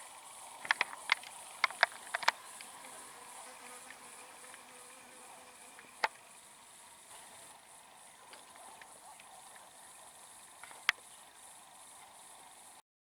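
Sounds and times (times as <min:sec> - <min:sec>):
flying insect buzzing: 0:00.0 - 0:12.8
sharp clicks: 0:00.6 - 0:03.0.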